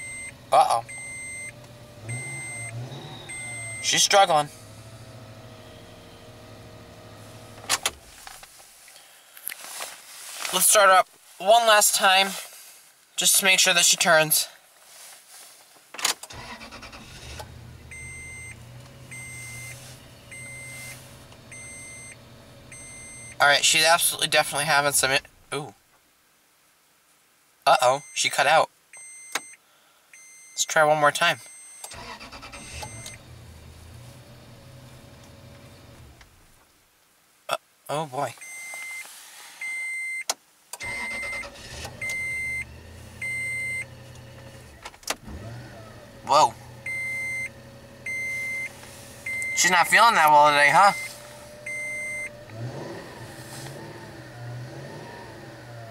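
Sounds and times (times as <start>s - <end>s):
door-open warning chime beeping: 0.0s - 4.0s, 17.9s - 23.4s, 29.0s - 29.6s, 32.6s - 33.2s, 40.9s - 43.9s, 46.8s - 47.5s, 48.1s - 48.7s, 49.3s - 49.8s, 50.8s - 52.4s
truck engine cranking and idling: 0.0s - 8.5s, 16.2s - 24.4s, 31.9s - 36.6s, 40.8s - 55.9s.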